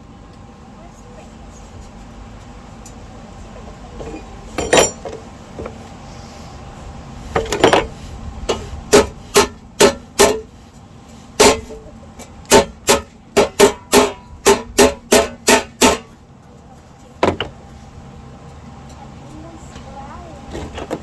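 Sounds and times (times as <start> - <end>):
hammer blows on sheet steel: 7.4 - 10.6, 11.4 - 11.8, 12.5 - 16.2.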